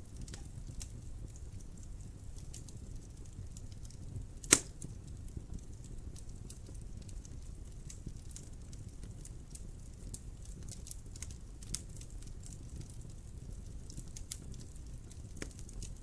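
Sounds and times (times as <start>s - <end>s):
fire rumbling: 0.0s - 16.0s
wood fire crackling: 0.0s - 16.0s
loud sharp fire pop: 4.4s - 4.9s.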